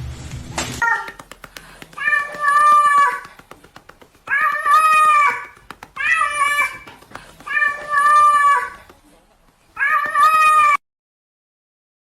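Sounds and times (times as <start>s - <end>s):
cat meowing loudly: 2.0s - 3.2s, 4.3s - 8.8s, 9.8s - 10.8s.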